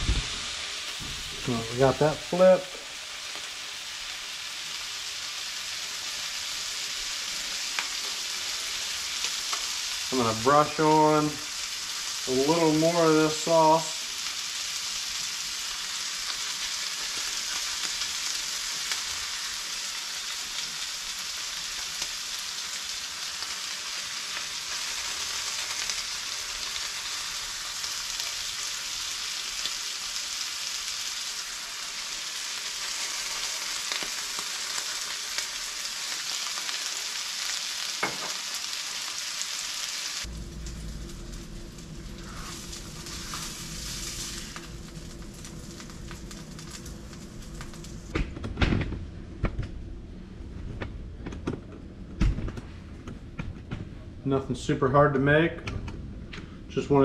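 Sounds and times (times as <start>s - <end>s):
fish sizzling in oil: 0.0s - 48.2s
low hum: 40.3s - 57.0s.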